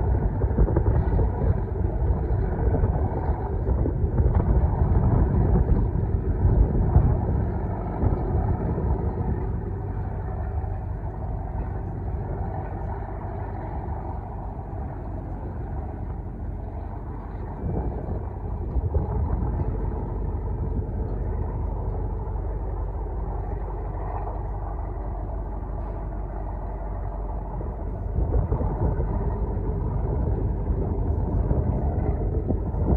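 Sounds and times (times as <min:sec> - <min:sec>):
ship engine rumble: 0:00.0 - 0:32.9.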